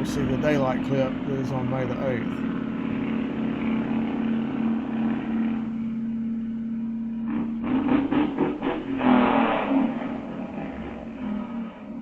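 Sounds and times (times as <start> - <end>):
car engine droning: 0.0 - 12.0
sharp engine bursts: 7.3 - 11.5.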